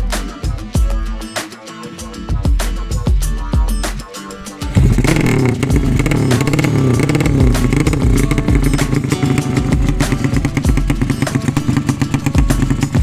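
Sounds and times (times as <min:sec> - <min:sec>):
music: 0:00.0 - 0:13.0
motorcycle engine revving: 0:04.6 - 0:13.0.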